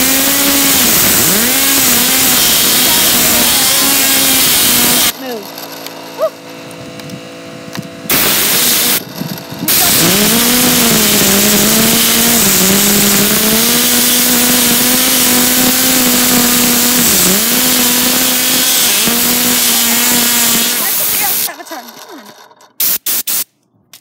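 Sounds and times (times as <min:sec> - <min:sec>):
compressed air hissing: 0:00.0 - 0:05.1, 0:08.1 - 0:21.5, 0:22.8 - 0:23.5.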